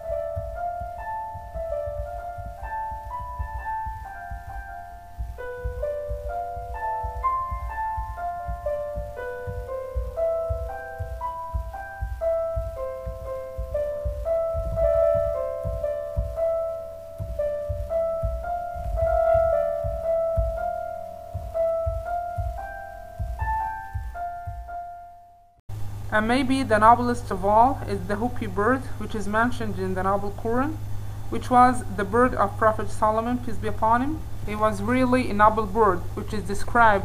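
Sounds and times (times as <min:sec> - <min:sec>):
slow piano music: 0:00.0 - 0:26.2.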